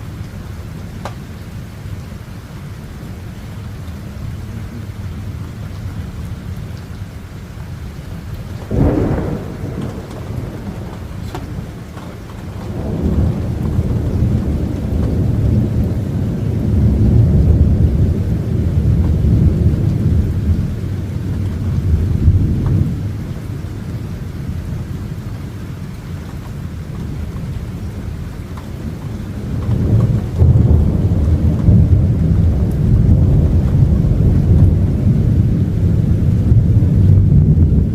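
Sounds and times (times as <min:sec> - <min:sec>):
rolling thunder rumble: 0:02.8 - 0:37.9
storm noise: 0:02.9 - 0:37.9
thunder crack: 0:08.5 - 0:23.5, 0:28.8 - 0:37.9.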